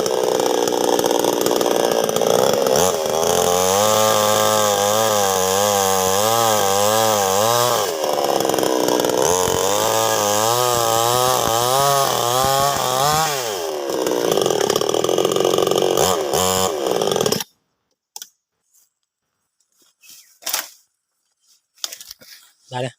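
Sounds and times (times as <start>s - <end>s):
chainsaw cutting wood: 0.0s - 17.6s.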